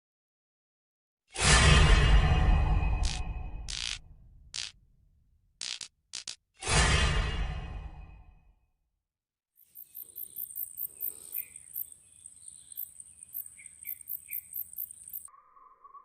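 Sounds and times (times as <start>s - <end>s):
insects chirping: 9.6s - 15.6s
bird chirps: 9.6s - 16.0s.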